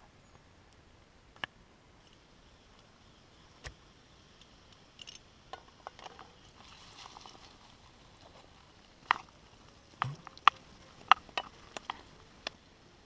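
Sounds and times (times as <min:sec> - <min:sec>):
cooking gear clicks and taps: 0:10.0 - 0:12.6.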